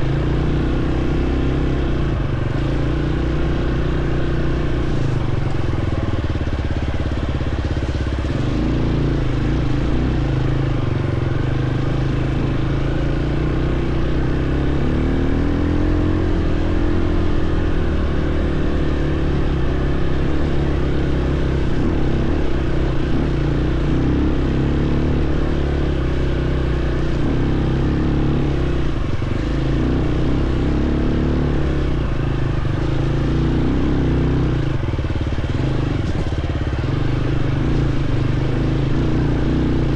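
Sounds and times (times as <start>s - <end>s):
dirt bike engine: 0.0s - 39.9s.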